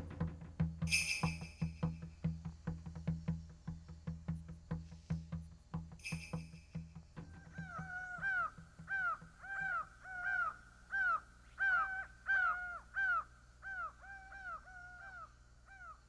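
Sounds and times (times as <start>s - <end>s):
bird cawing: 7.2s - 16.0s.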